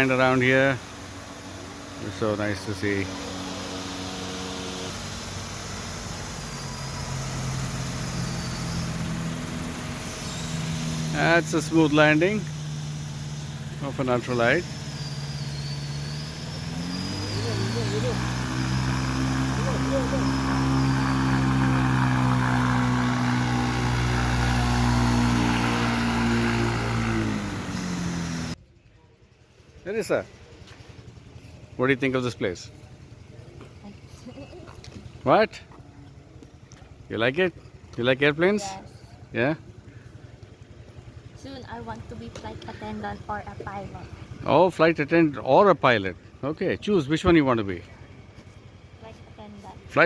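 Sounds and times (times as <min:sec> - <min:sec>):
light aircraft engine droning: 0:00.0 - 0:29.4.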